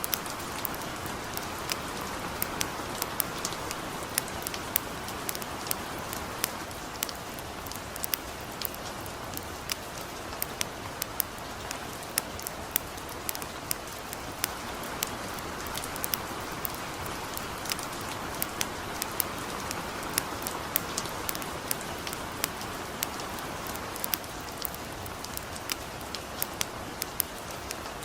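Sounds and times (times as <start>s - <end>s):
campfire crackling: 0.0s - 28.0s
light rain patter: 0.0s - 28.0s.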